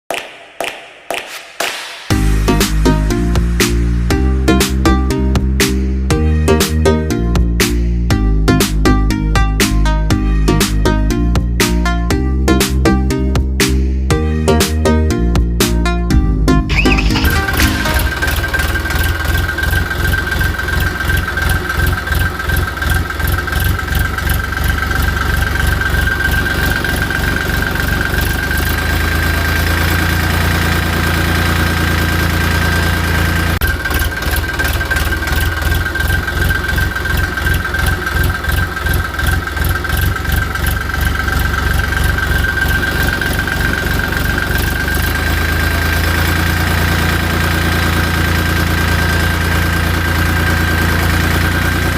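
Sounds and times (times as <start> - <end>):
tractor engine idling: 16.4 - 51.9.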